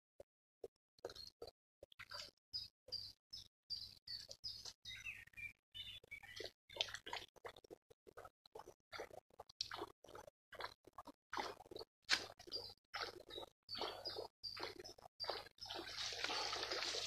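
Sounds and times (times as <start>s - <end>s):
birds chirping and singing: 2.1s - 6.5s, 12.5s - 17.0s.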